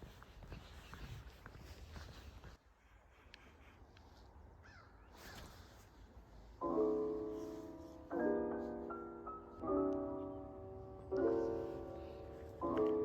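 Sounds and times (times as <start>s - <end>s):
faint ambient noise: 0.0s - 13.0s
soft piano chords: 6.4s - 13.0s.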